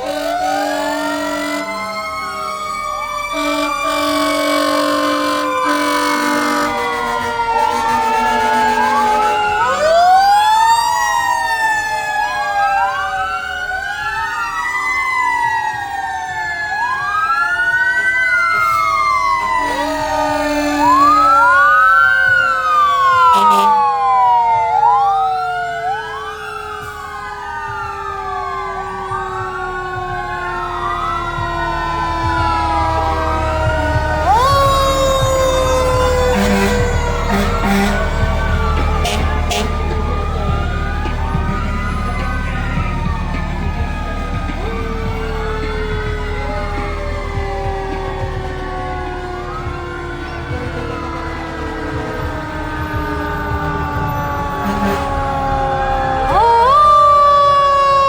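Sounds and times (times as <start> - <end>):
horn-like tones: 0.0 - 10.2, 18.6 - 24.2, 28.6 - 57.2
fire truck sirens wailing: 0.0 - 58.0
siren falling in pitch: 0.0 - 58.0.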